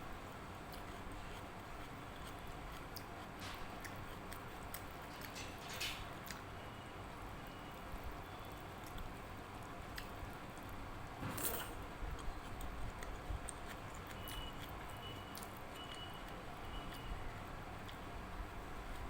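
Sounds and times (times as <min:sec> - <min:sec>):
soft squishing of food: 0:00.0 - 0:19.0
quiet chewing: 0:00.2 - 0:06.5, 0:07.4 - 0:11.1, 0:11.9 - 0:19.0
sharp scrape or clatter: 0:11.2 - 0:11.8.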